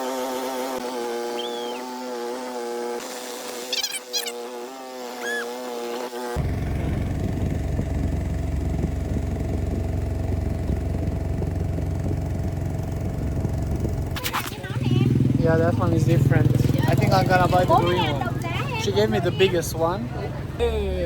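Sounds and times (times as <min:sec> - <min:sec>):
high whistled calls: 0:01.3 - 0:01.9, 0:03.7 - 0:04.4, 0:05.2 - 0:05.5
motor engine rumbling: 0:06.4 - 0:21.0
steady pitched drone: 0:06.4 - 0:21.0.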